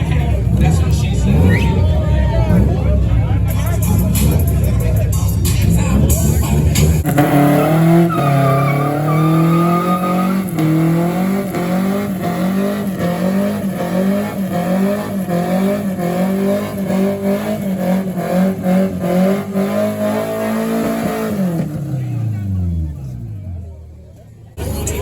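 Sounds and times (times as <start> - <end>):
car engine at high revs: 0.0 - 25.0
tires squealing on pavement: 0.2 - 2.8, 5.6 - 22.3.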